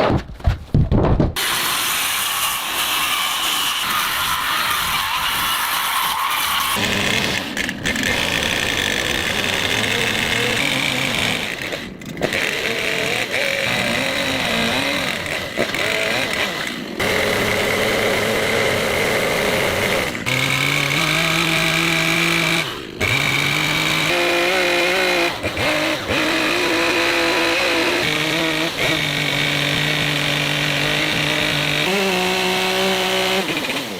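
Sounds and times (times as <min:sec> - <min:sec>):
chainsaw cutting: 0:01.4 - 0:33.9.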